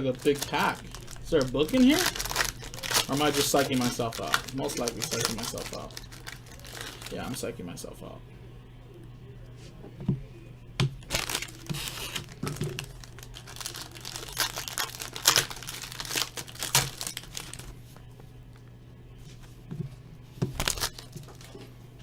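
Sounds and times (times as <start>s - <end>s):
card pack wrapper crinkling: 0.0s - 7.5s, 11.0s - 17.7s, 20.6s - 21.6s.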